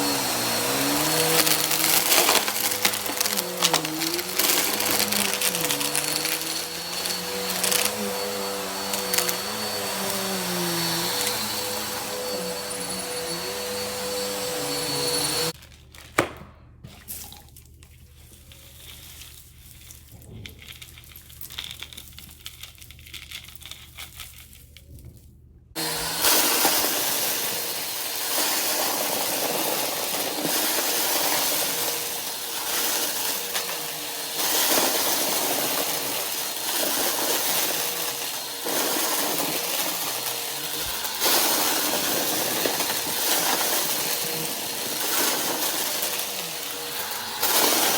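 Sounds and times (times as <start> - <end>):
vacuum cleaner whine and suction: 0.0 - 15.6, 25.8 - 47.9
vacuum crunching up confetti: 0.0 - 15.6, 25.8 - 47.9.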